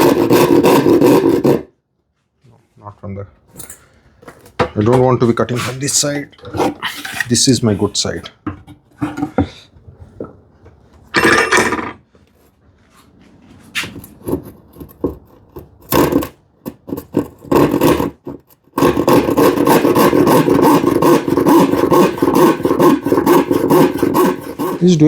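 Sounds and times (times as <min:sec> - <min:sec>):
hand saw cutting plywood: 0:00.0 - 0:01.7, 0:13.8 - 0:25.0
handling of workpiece: 0:03.5 - 0:10.4, 0:11.2 - 0:12.1.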